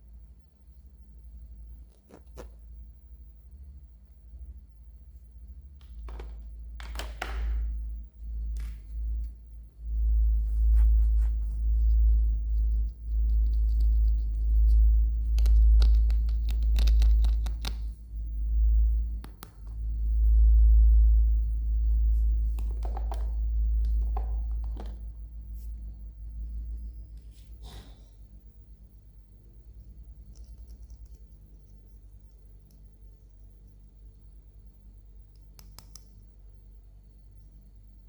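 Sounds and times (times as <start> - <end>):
sharp clicks: 35.4 - 36.2.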